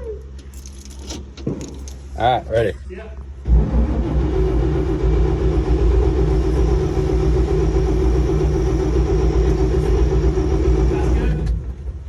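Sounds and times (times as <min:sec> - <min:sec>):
truck engine cranking: 0:03.4 - 0:12.0.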